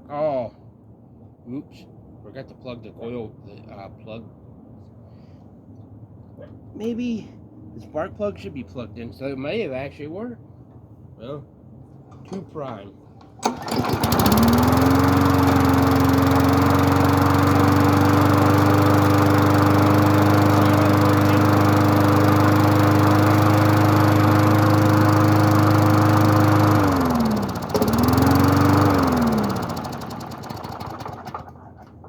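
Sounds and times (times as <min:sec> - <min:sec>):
lawn mower engine running: 0:13.4 - 0:32.0.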